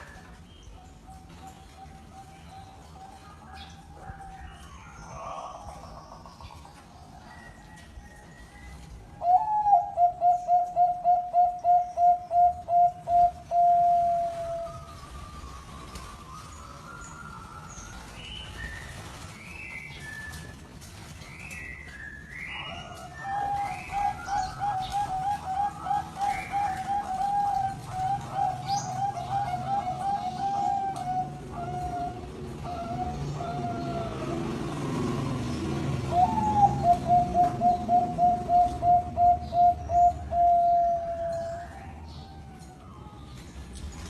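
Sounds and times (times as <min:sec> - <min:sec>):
dove cooing: 0:09.2 - 0:15.0, 0:22.6 - 0:34.6, 0:36.0 - 0:41.6.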